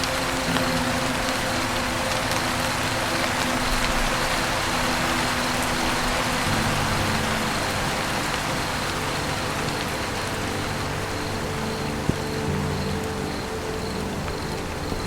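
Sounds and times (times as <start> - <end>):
low sustained tones: 0.0 - 15.0
rain on a roof: 0.0 - 15.0.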